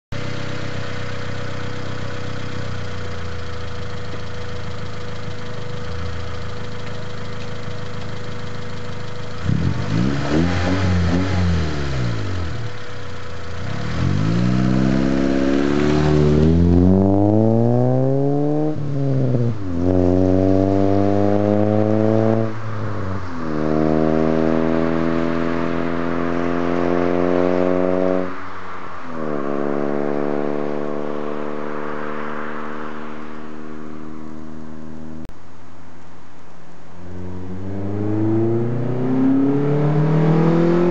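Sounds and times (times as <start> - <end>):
car engine accelerating through gears: 9.3 - 28.4, 29.1 - 35.3, 37.0 - 40.9.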